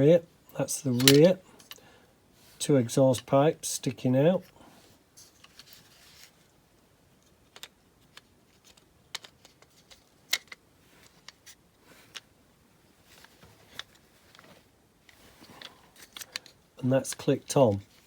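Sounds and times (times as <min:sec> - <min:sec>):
small clicks of model parts: 0:07.2 - 0:12.3, 0:15.1 - 0:17.3.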